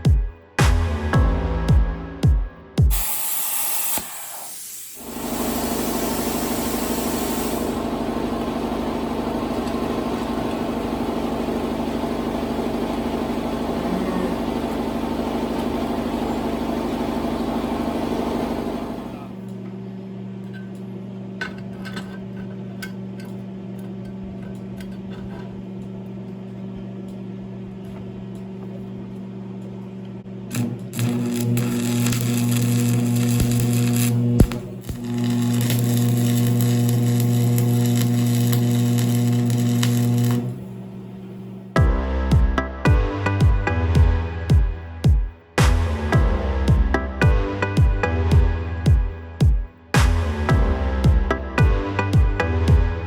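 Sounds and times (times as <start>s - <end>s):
plasma cutter hissing: 2.9s - 8.0s, 30.5s - 40.6s.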